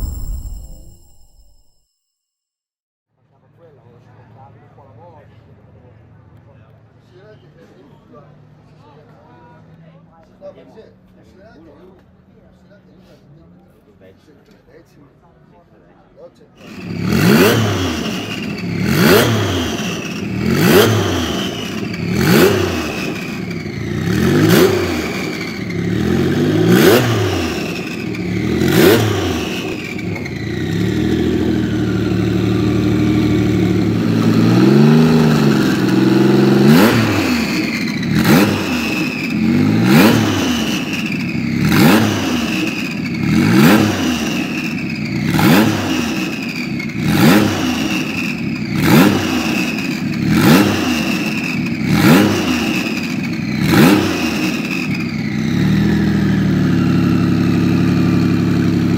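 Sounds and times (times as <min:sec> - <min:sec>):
sports car engine revving: 0:16.6 - 0:58.9.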